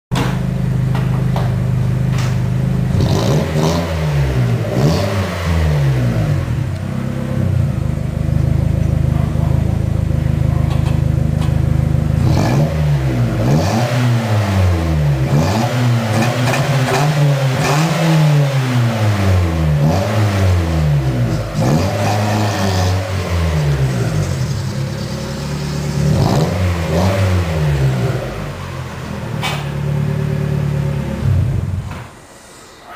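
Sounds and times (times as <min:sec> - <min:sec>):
car engine idling: 0:00.1 - 0:03.2, 0:06.0 - 0:12.4, 0:22.9 - 0:32.9
car engine revving: 0:00.2 - 0:32.0.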